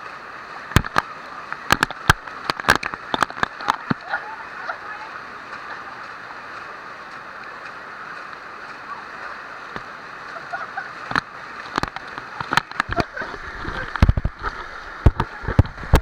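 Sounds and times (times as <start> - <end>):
waterfall rushing: 0.0 - 16.0
sharp splashes or knocks: 0.7 - 1.1, 1.7 - 4.0, 11.1 - 16.0.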